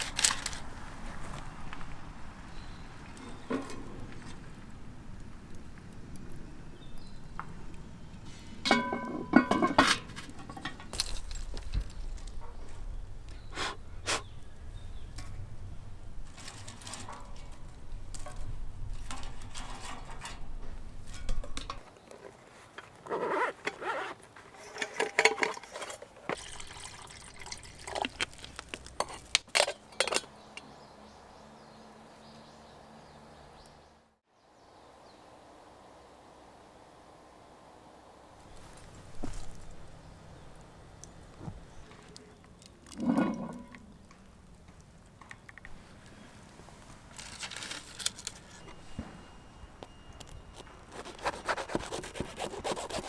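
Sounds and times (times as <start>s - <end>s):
cookware clinking and knocking: 8.7s - 11.0s.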